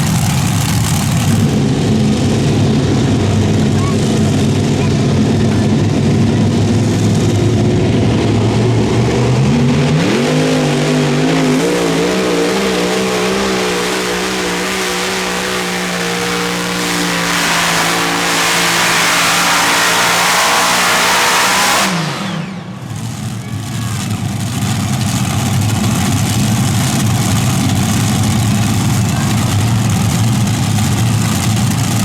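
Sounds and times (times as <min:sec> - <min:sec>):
pulling tractor engine at full power: 0:00.0 - 0:32.0
high whine: 0:01.4 - 0:24.2.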